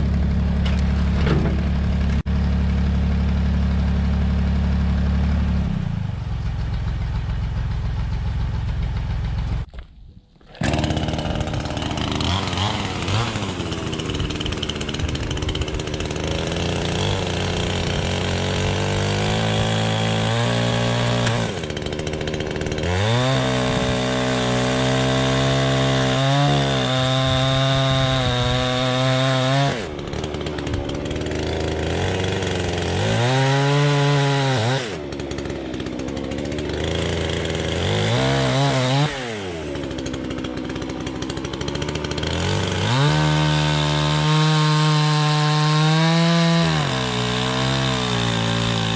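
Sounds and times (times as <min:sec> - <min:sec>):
engine revving hard: 0:10.6 - 0:48.9.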